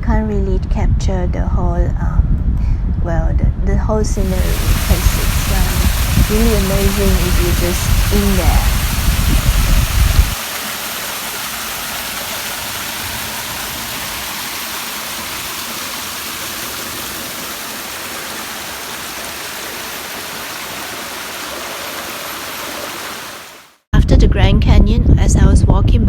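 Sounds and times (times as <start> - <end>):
waterfall rushing: 4.2 - 23.8.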